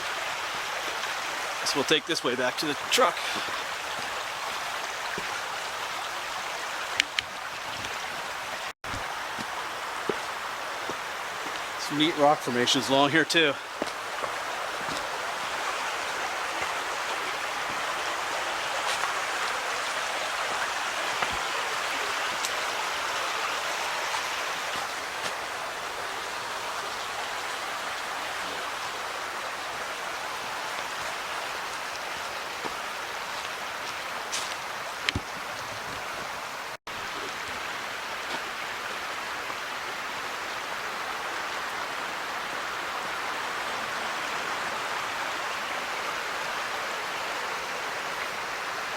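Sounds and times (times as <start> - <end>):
creek water rushing: 0.0 - 48.9.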